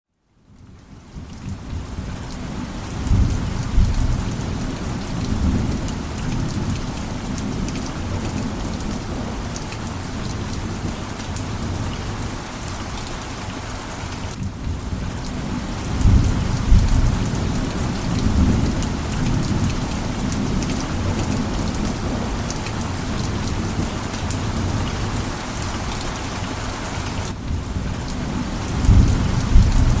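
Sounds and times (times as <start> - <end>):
heavy rain on a tin roof: 0.3 - 30.0
thunder rumbles: 2.8 - 9.6, 14.3 - 25.2, 27.3 - 30.0.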